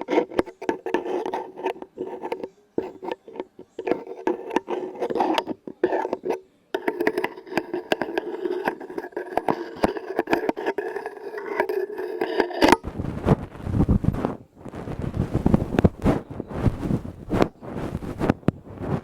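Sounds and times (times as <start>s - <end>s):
ringing hum: 0.0s - 18.7s
tapping and scratching on objects: 0.0s - 19.0s.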